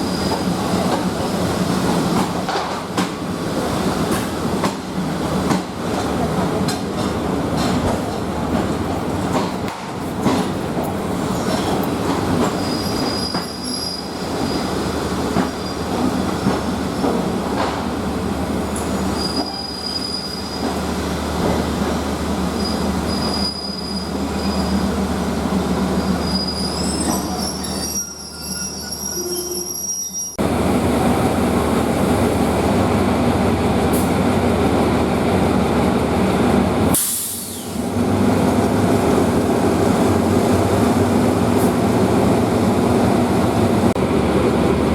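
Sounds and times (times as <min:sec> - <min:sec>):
train wheels squealing: 0:00.0 - 0:00.6, 0:12.5 - 0:16.1, 0:18.8 - 0:20.8, 0:22.5 - 0:24.8, 0:25.9 - 0:30.4
train rumbling over track: 0:00.0 - 0:44.9.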